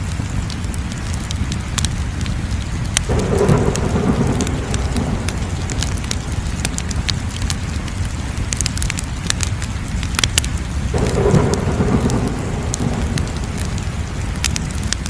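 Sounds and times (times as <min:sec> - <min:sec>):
wood fire crackling and popping: 0:00.0 - 0:15.0
steady low rumble: 0:02.2 - 0:15.0.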